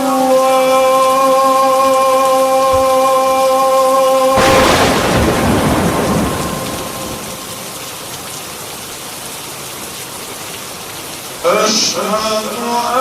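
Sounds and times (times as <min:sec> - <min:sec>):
man chanting: 0:00.0 - 0:04.4
steady rain: 0:00.0 - 0:13.0
thunder rumbling: 0:04.4 - 0:08.2.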